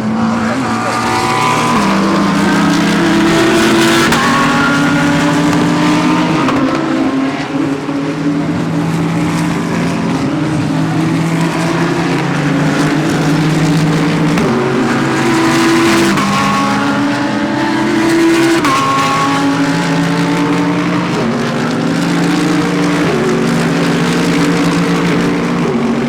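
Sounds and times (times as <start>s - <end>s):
race car engines revving: 0.0s - 26.0s.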